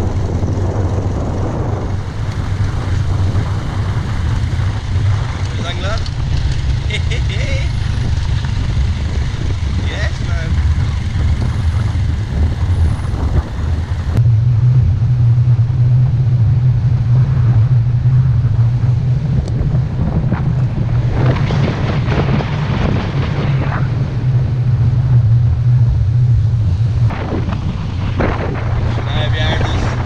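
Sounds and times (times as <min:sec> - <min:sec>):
small motorbike engine running: 0:00.0 - 0:14.2
wind buffeting microphone: 0:00.0 - 0:30.0.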